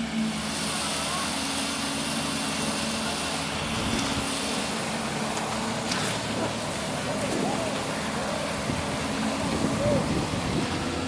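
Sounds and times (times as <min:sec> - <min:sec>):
heavy machinery engines running: 0:00.0 - 0:11.0.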